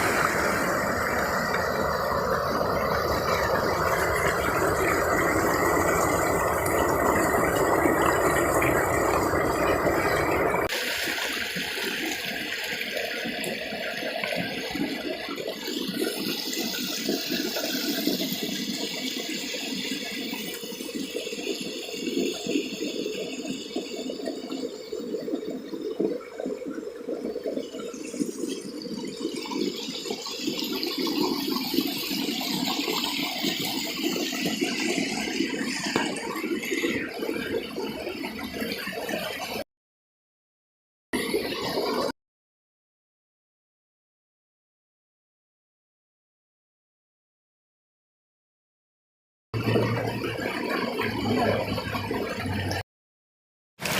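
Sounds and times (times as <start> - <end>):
stream water rushing and splashing: 0.0 - 13.9.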